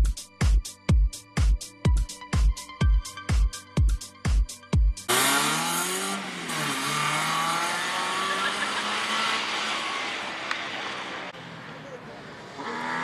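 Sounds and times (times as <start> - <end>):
electronic music: 0.0 - 6.4
rally car engine revving: 5.1 - 13.0.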